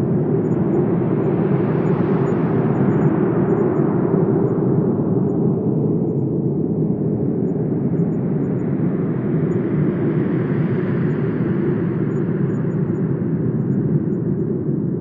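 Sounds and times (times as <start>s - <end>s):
wind blowing with deep rumble: 0.0s - 15.0s.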